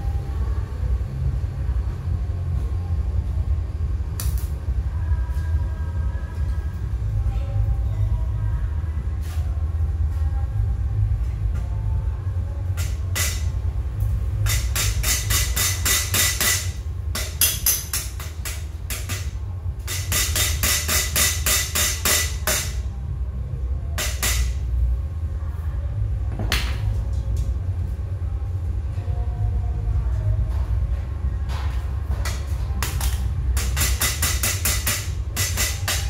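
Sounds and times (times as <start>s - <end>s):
steady low hum: 0.0s - 36.0s
hammer striking steel: 12.8s - 13.6s, 14.4s - 22.9s, 24.0s - 24.6s, 32.2s - 36.0s.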